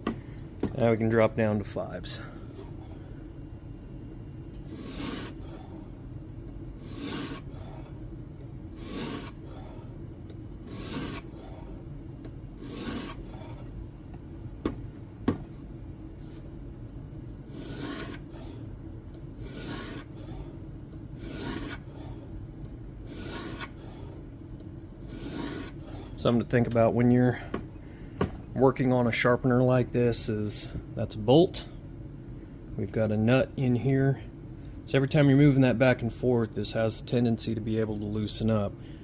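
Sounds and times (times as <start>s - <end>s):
sharpening plate rasping on knife: 4.8s - 5.4s, 6.9s - 7.5s, 8.8s - 9.4s, 10.7s - 11.3s, 12.6s - 13.3s, 17.6s - 18.2s, 19.4s - 20.1s, 21.2s - 21.8s, 23.1s - 23.8s, 25.1s - 25.8s.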